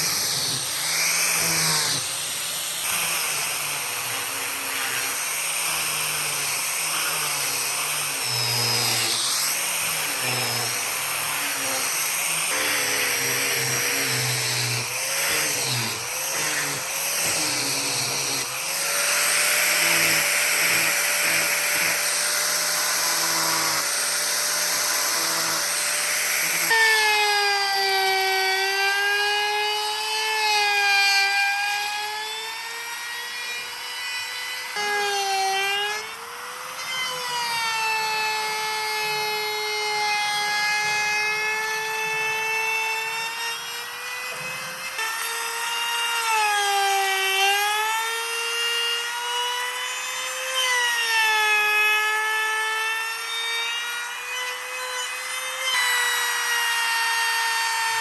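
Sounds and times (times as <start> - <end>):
rasping hiss of wood cutting: 0.0 - 27.3
power tool motor whining: 0.0 - 58.0.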